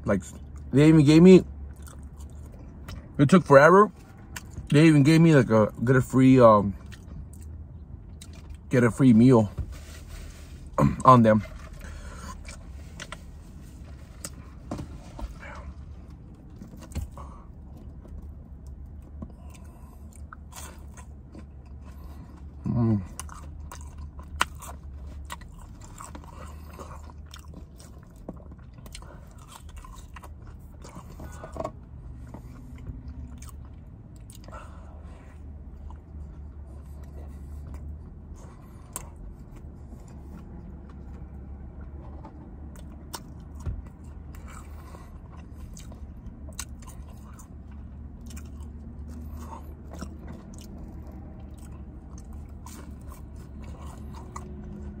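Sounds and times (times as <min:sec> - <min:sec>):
low steady hum: 0:00.0 - 0:55.0
wet chewing and crunchy bites: 0:01.6 - 0:03.2, 0:06.7 - 0:08.7, 0:11.4 - 0:55.0.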